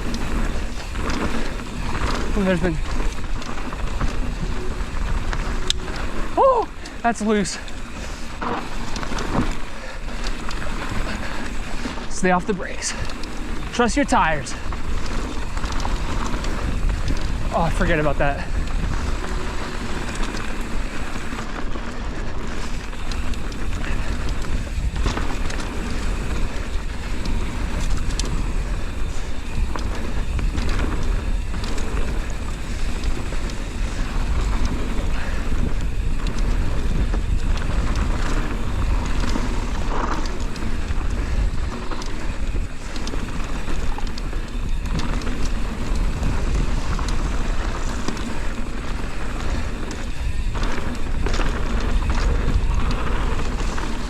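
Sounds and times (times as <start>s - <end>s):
bike clicks and knocks: 0.0s - 54.0s
tyre noise on dirt trail: 0.0s - 54.0s
wind buffeting microphone: 0.0s - 54.0s.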